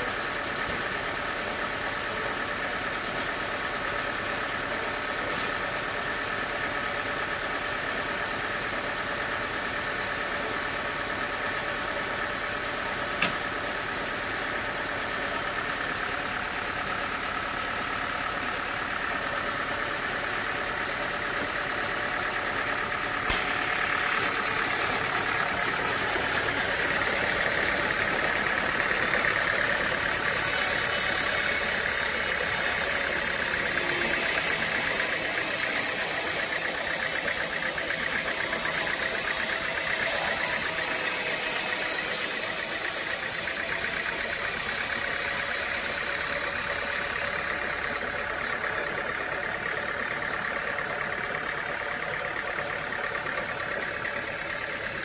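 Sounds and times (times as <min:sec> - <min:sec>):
sawmill machinery humming: 0:00.0 - 0:55.0
sharp knocks: 0:23.2 - 0:23.6.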